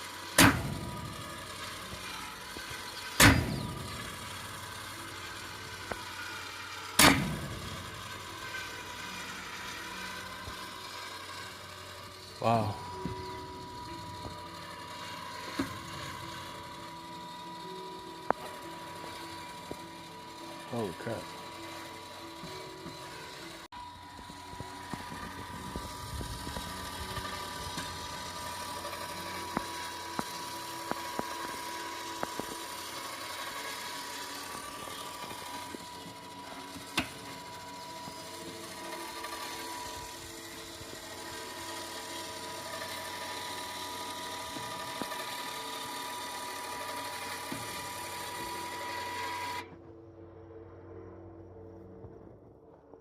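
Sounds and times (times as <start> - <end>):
small electric motor whining: 0.0 - 52.4
sharp clicks and ticks: 22.9 - 37.3.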